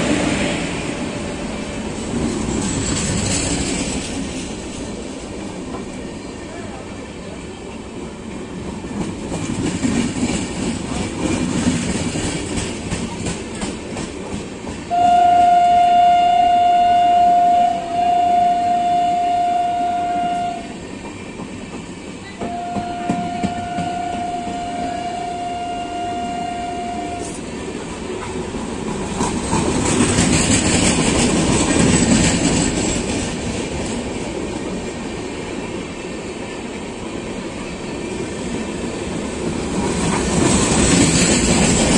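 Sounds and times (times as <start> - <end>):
train wheels rolling clickety-clack: 0.0 - 15.2, 20.2 - 41.9
locomotive horn blasts: 14.9 - 20.8, 22.4 - 27.4.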